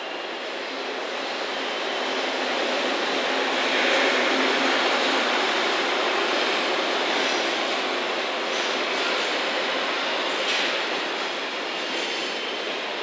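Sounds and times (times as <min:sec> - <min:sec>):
freight train passing: 0:00.0 - 0:13.0.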